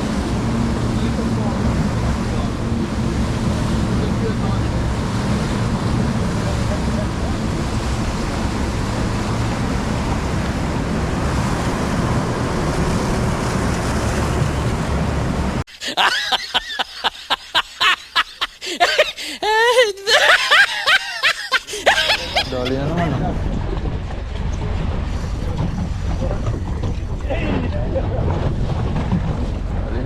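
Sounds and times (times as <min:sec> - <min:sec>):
wind rushing: 0:00.0 - 0:15.6
boat engine: 0:00.0 - 0:30.0
people talking and laughing: 0:15.9 - 0:28.6.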